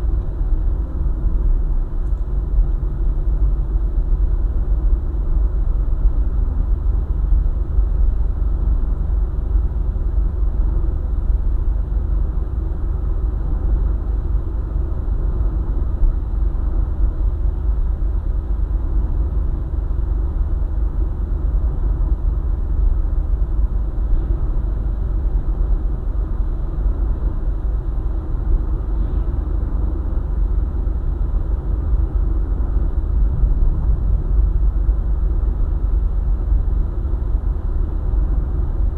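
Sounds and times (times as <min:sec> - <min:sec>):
car tyres rumbling on road: 0:14.7 - 0:38.9.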